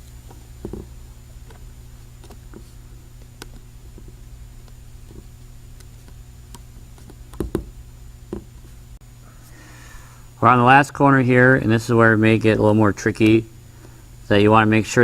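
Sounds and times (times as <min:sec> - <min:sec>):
steady low hum: 0:00.0 - 0:15.0
sharp knocks: 0:07.3 - 0:08.6.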